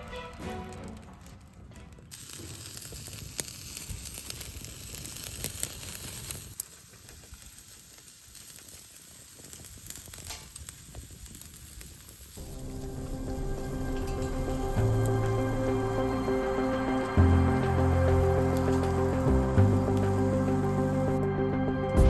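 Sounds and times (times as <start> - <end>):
food sizzling in a pan: 2.1 - 21.1.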